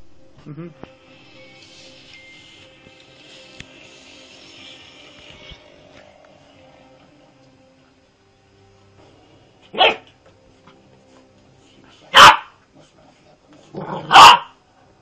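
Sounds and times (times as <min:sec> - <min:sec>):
dog barking: 0:09.8 - 0:10.1, 0:12.1 - 0:12.6, 0:13.8 - 0:14.6.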